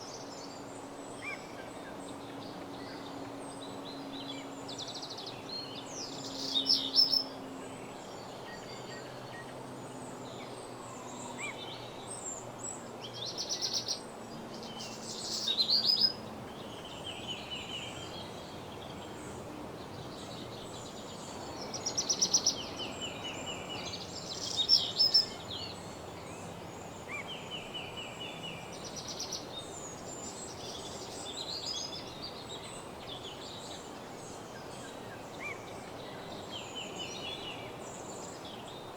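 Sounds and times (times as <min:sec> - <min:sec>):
background hiss: 0:00.0 - 0:38.9
birds chirping: 0:13.1 - 0:38.9
songbird trilling: 0:14.6 - 0:32.6.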